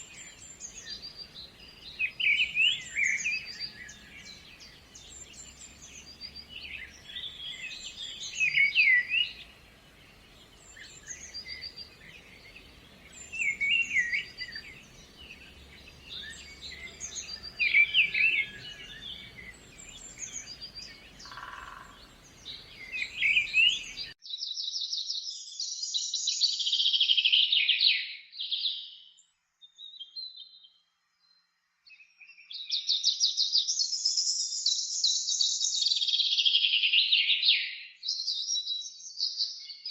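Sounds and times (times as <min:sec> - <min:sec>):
faint steady hiss: 0:00.0 - 0:24.2
songbirds chirping: 0:00.0 - 0:26.5.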